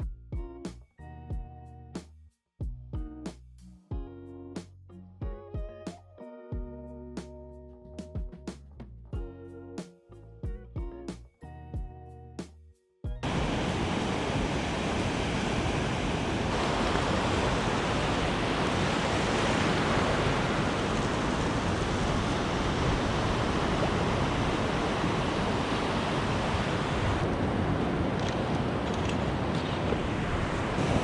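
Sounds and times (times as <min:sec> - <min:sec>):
ocean surf washing ashore: 0:13.2 - 0:31.0
wind on microphone: 0:13.2 - 0:31.0.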